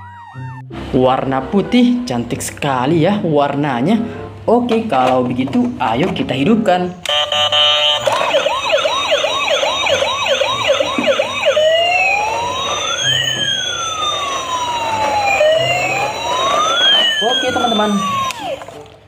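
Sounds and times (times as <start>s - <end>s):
toy siren: 0.0s - 0.6s, 7.1s - 18.8s.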